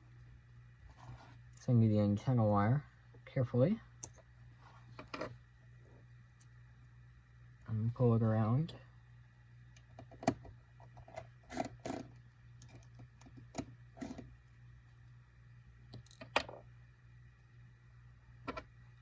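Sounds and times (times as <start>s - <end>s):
steady low hum: 0.0s - 19.0s
small clicks and taps of tools: 4.0s - 4.3s.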